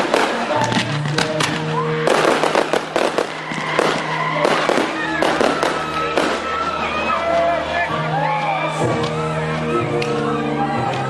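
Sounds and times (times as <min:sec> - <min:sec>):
fireworks bangs and crackles: 0:00.0 - 0:07.6.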